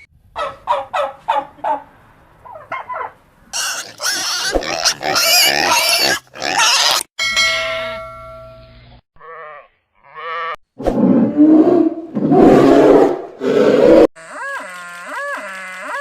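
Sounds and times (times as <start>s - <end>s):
animal bleating: 9.2s - 10.6s, 14.2s - 16.0s
loud harsh animal calls: 12.7s - 16.0s.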